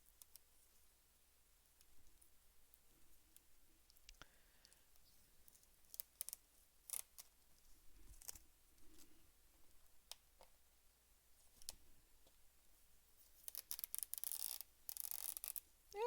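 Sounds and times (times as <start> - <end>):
tape peeling off paper: 13.4 - 15.6.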